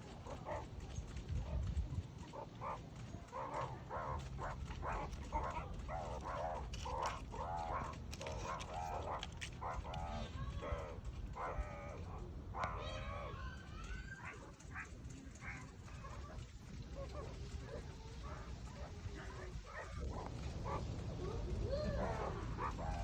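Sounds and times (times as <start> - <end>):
steady low rumble: 14.6 - 23.0.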